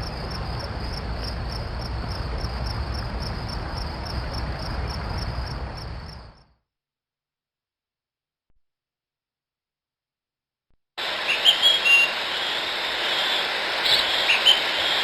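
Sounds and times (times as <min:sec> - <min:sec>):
low rumbling background noise: 0:00.0 - 0:06.5
crickets chirping: 0:00.0 - 0:06.6, 0:11.0 - 0:15.0.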